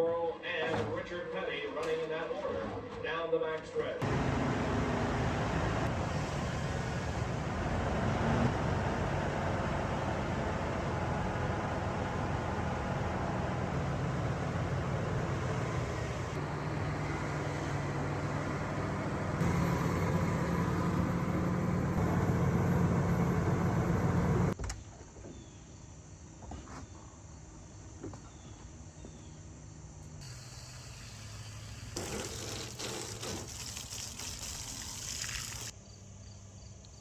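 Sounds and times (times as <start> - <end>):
vehicle engine running: 4.0 - 24.6.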